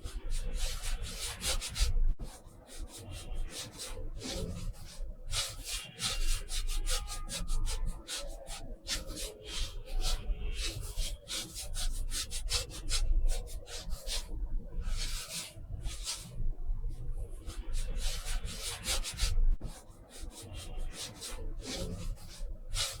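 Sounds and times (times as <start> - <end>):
paintbrush scratching on paper: 17.4 - 23.0.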